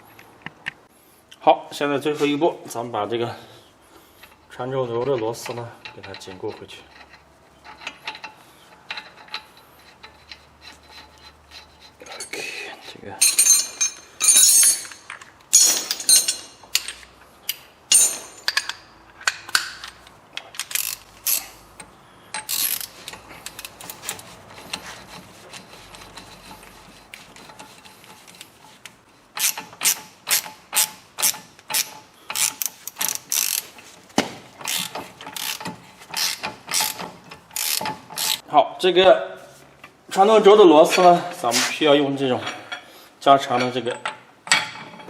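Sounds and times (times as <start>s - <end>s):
ratchet wrench clicking: 20.6s - 21.5s, 22.4s - 23.9s, 29.3s - 33.7s, 34.6s - 38.4s.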